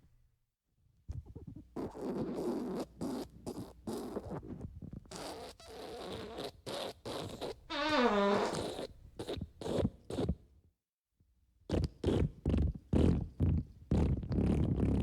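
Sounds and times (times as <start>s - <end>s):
fart sounds: 5.1s - 10.3s, 11.7s - 15.0s.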